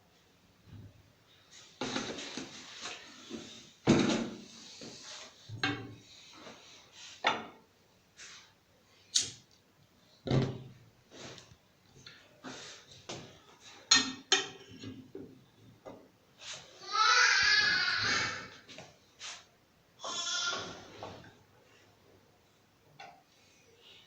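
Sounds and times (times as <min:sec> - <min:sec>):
objects knocking and clattering: 0:01.8 - 0:04.5, 0:05.5 - 0:06.0, 0:13.0 - 0:16.1.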